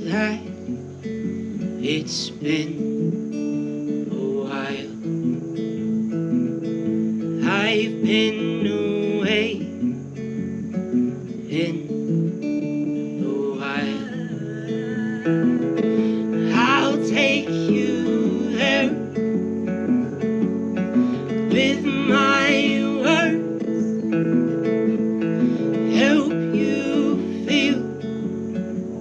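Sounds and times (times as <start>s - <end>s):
strummed acoustic guitar: 0.0s - 29.0s
person singing: 7.4s - 9.8s, 11.5s - 12.0s, 13.0s - 19.3s, 20.9s - 24.2s, 25.2s - 28.5s.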